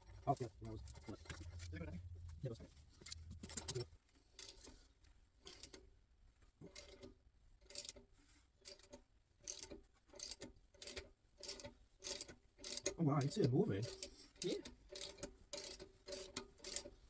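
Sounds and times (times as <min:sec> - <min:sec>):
hand ratchet clicking: 0:05.4 - 0:05.8, 0:08.6 - 0:17.0.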